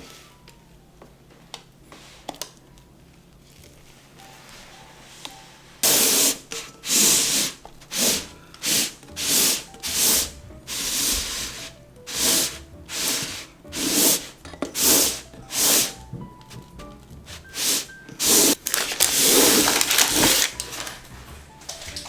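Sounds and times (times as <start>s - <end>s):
soft background music: 0.0s - 22.0s
utensil scraping batter in bowl: 5.8s - 21.0s.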